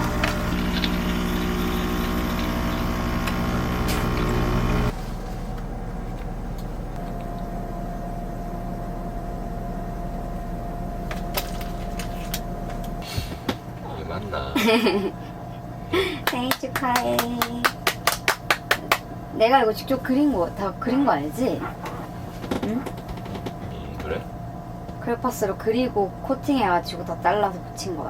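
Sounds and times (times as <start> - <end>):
motor humming: 0.0 - 28.0.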